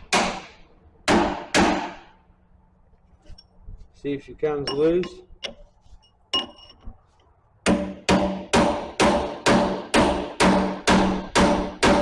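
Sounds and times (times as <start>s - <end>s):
hammer striking steel punch: 0.0s - 2.1s, 7.7s - 12.0s.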